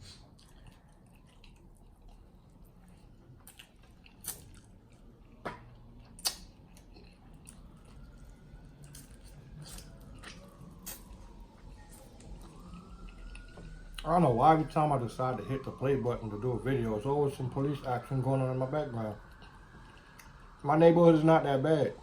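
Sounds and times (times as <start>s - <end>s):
close-up chewing: 0.0s - 14.7s, 19.1s - 20.6s
faint police siren wailing: 0.0s - 22.0s
mouth clicks and smacks: 3.5s - 4.7s, 5.3s - 7.6s.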